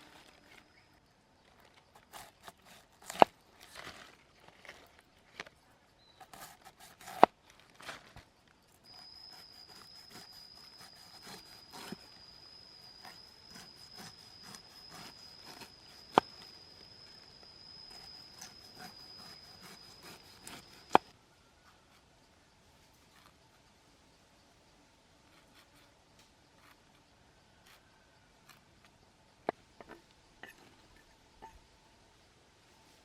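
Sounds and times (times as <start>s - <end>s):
thin steady high tone: 8.8s - 21.6s.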